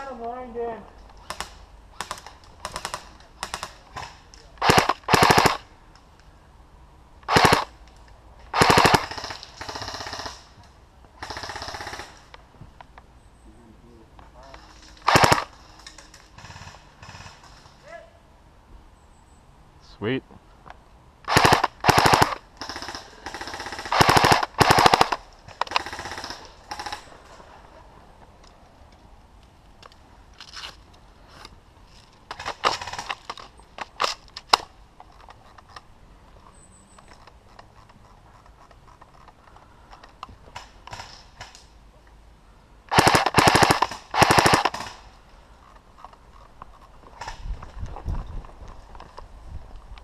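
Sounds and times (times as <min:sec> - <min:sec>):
electric airsoft gun bursts: 0:21.3 - 0:27.0, 0:42.9 - 0:45.0.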